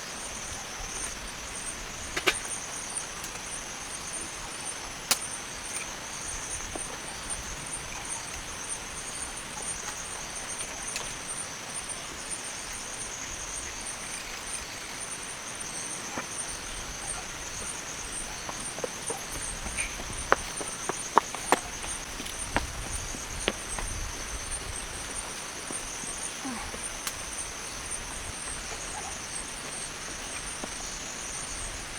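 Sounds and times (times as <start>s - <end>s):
insect chorus trilling: 0.0s - 31.9s.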